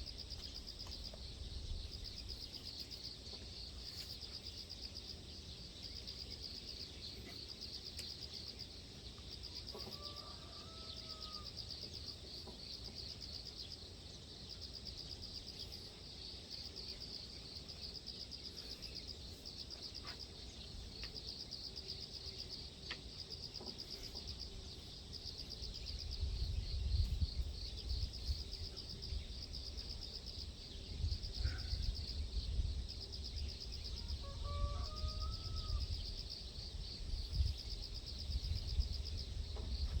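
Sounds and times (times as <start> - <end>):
insects chirring: 0.0 - 40.0
wind rumble on microphone: 25.8 - 40.0.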